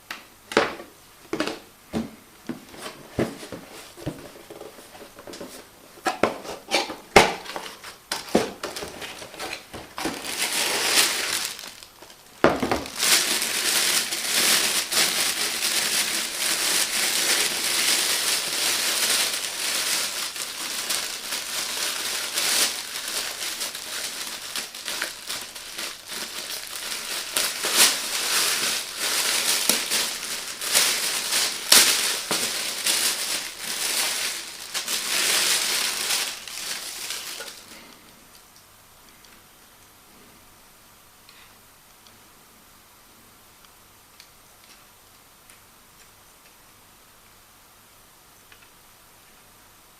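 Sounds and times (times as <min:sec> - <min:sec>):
packaging crinkling: 0:07.2 - 0:38.1.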